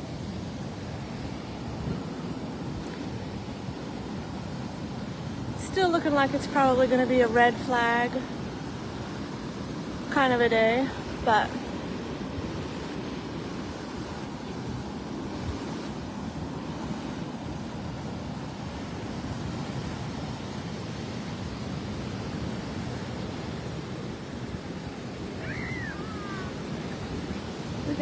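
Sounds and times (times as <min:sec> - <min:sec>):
surf breaking on beach: 0:00.0 - 0:28.0.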